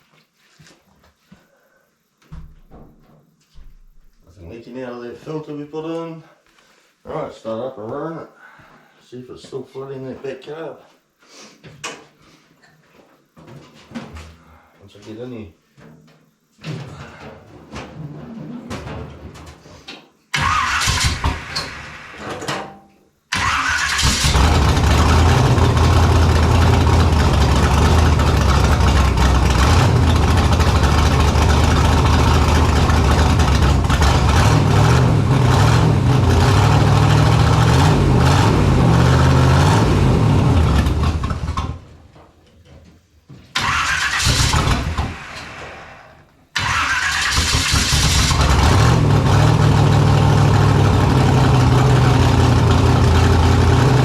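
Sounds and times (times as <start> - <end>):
car engine starting and running: 20.4 - 22.2, 23.3 - 41.9, 43.6 - 45.7, 46.6 - 54.0.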